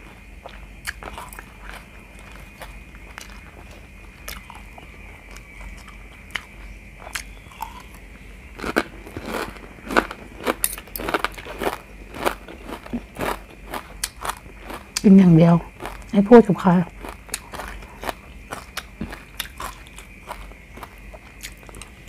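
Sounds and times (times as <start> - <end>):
chewing and mouth sounds: 0.4 - 8.0, 8.6 - 16.2, 16.9 - 22.0
spoon and fork scooping food: 10.5 - 11.4.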